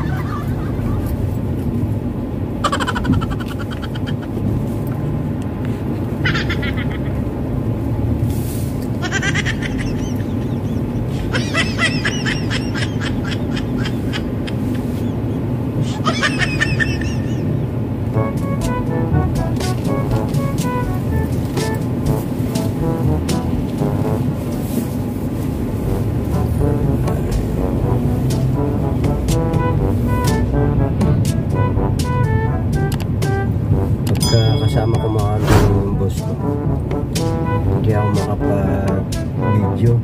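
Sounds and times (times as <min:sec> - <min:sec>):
car engine and road noise: 0:00.0 - 0:40.0
music with held notes: 0:18.0 - 0:24.2, 0:26.2 - 0:34.5.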